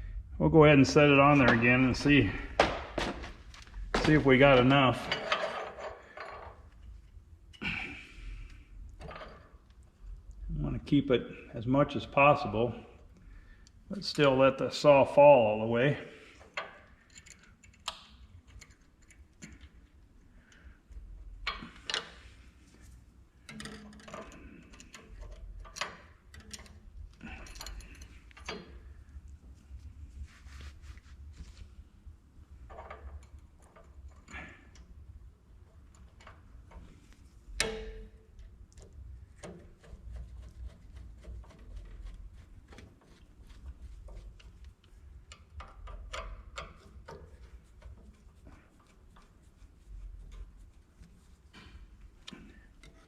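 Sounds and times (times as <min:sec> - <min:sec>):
metal parts clicking and tapping: 0:03.9 - 0:07.2, 0:16.4 - 0:20.0, 0:23.4 - 0:29.0, 0:32.7 - 0:53.0.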